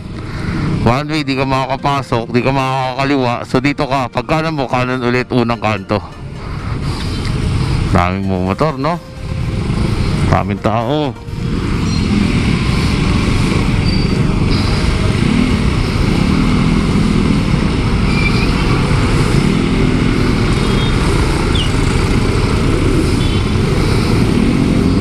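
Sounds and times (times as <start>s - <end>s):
surrounding traffic: 0.0s - 25.0s
motorcycle engine running: 11.4s - 25.0s.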